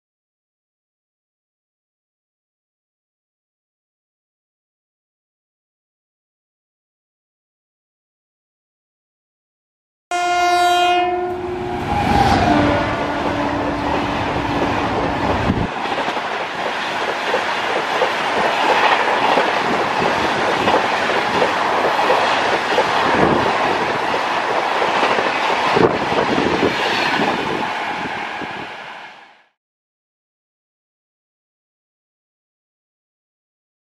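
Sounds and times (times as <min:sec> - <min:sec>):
locomotive horn: 0:10.1 - 0:15.2
train coaches rushing past: 0:11.2 - 0:29.4.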